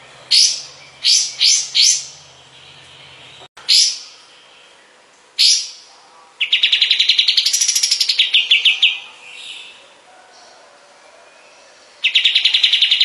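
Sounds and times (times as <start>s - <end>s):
rapid high bird trill: 0.0s - 4.8s.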